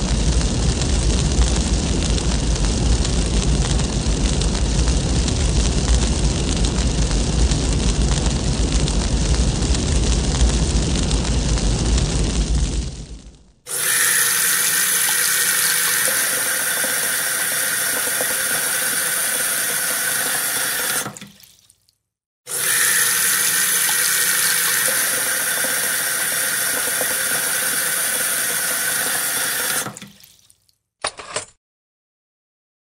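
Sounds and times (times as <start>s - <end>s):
water running: 13.7s - 21.7s, 22.5s - 30.6s.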